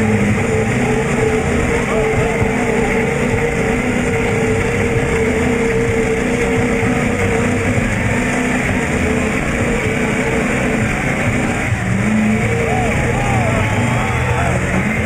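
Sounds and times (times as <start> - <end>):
truck engine at high revs: 0.0 - 15.0.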